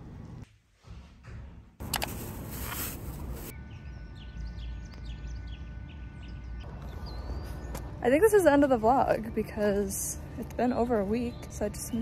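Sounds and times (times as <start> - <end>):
rustling noise on microphone: 1.8 - 3.5.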